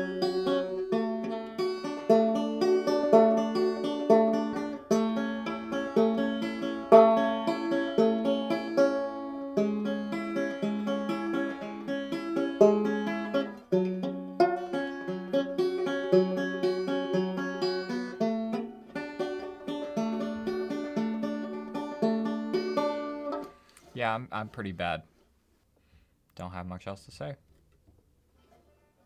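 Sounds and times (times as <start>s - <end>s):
banjo plucked notes: 0.0s - 23.7s.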